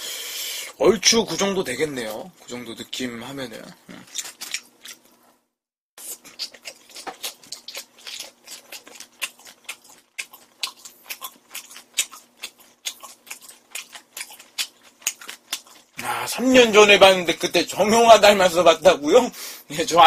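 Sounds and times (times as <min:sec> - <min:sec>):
man chewing food: 0:03.7 - 0:05.4, 0:06.0 - 0:16.2.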